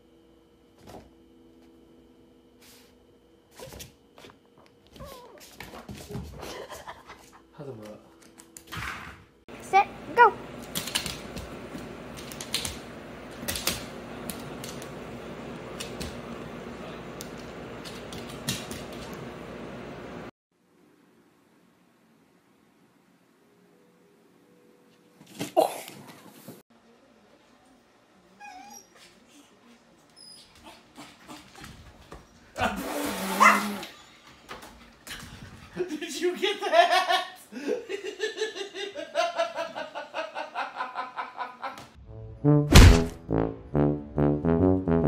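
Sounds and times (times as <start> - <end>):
dog claws clicking on wooden floor: 10.6 - 11.5
dog whining: 28.4 - 29.0, 33.0 - 34.2.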